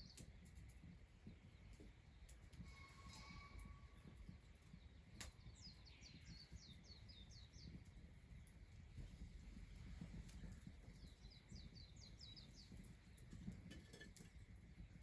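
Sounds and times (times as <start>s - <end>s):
faint whistled tone: 2.6s - 4.1s
songbird singing: 3.1s - 9.1s, 10.0s - 13.4s.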